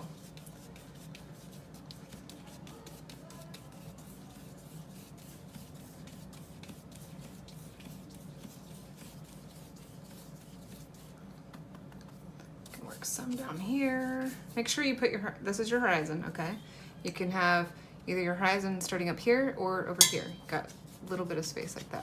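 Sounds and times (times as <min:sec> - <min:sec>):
paint brush scratchy strokes: 0:00.0 - 0:11.3, 0:20.1 - 0:21.9.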